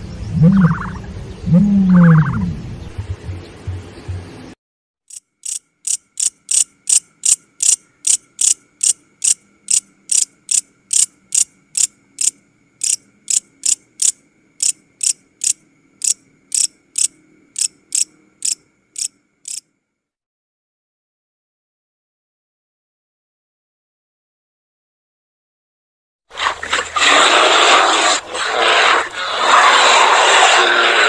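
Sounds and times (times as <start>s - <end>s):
grasshopper chirping: 0.2s - 3.2s, 5.1s - 19.7s.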